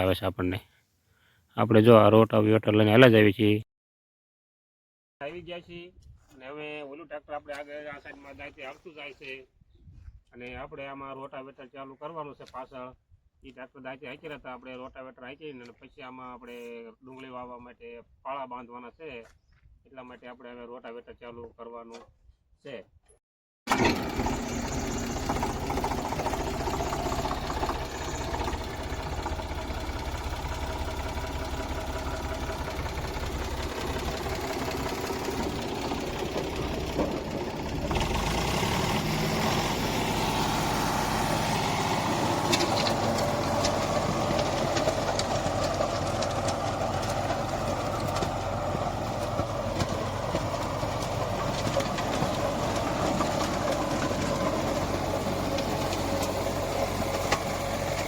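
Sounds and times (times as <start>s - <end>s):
tractor engine with rotavator: 23.7s - 58.0s.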